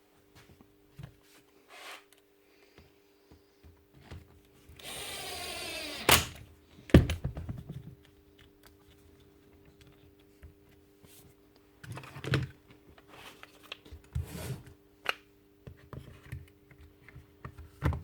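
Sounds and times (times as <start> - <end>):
small power tool motor: 4.8 - 6.4.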